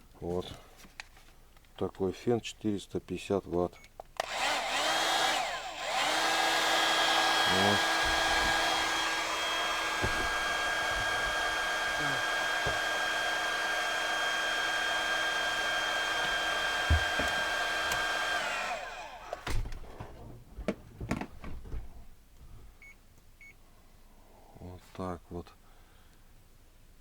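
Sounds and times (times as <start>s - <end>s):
hair dryer running: 4.2s - 19.5s.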